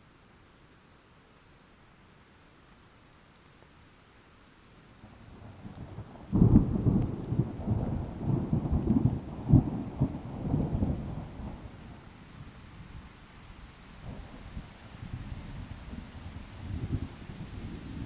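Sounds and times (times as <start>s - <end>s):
faint rain hiss: 0.0s - 18.0s
thunder rumbling and cracking: 5.8s - 11.7s.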